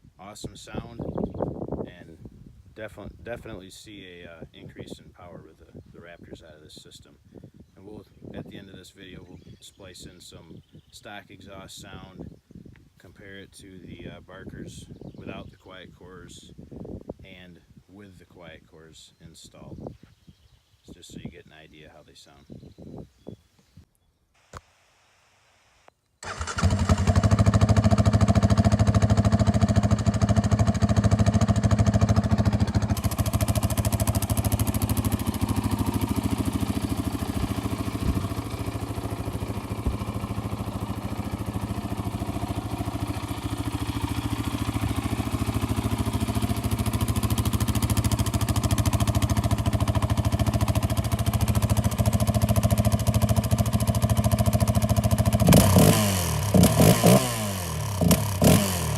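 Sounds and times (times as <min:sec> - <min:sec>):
atv engine idling: 0:26.2 - 0:58.9.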